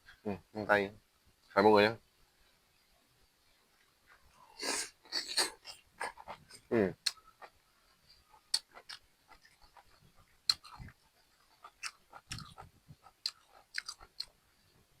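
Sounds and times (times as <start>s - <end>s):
mouth clicks and soft crunches: 3.8s - 14.4s
person chewing food: 4.1s - 14.4s.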